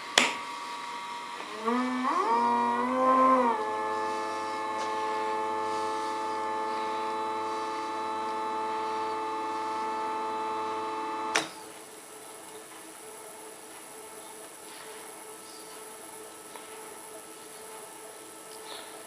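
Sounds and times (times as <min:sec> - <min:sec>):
lathe motor whining: 0:00.0 - 0:11.7
faint hum: 0:00.0 - 0:19.0
motor stopping click: 0:07.3 - 0:11.6.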